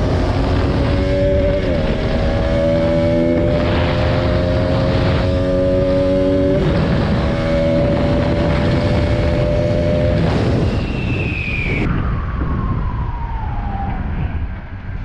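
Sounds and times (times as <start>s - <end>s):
motorcycle engine high revs: 0.0s - 10.6s
wind on microphone: 0.0s - 15.0s.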